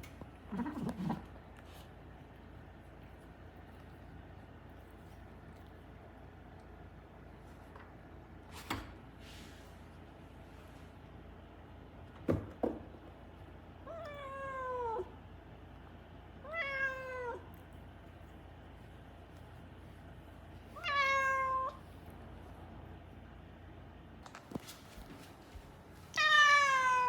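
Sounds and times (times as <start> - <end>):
cat meowing: 13.8 - 15.1, 16.4 - 17.5, 20.8 - 21.8, 26.1 - 27.0.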